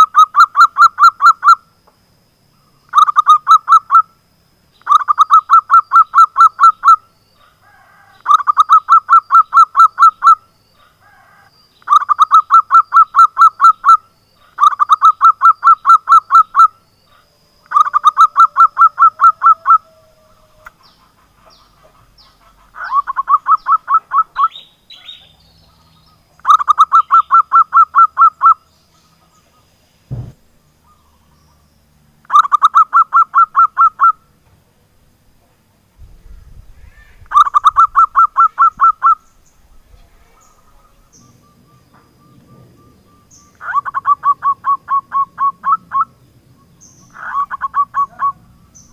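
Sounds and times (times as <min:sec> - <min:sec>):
dove cooing: 0:04.9 - 0:25.8, 0:36.9 - 0:39.2, 0:40.0 - 0:46.2, 0:47.1 - 0:48.9
dull thump: 0:30.1 - 0:30.5.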